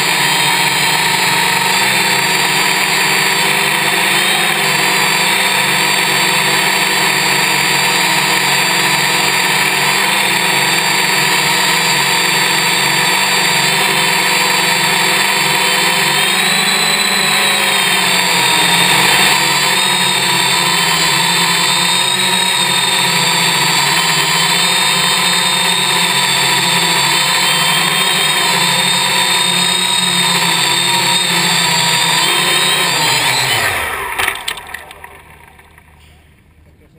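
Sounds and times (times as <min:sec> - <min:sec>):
multicopter motors whining: 0:00.0 - 0:36.9.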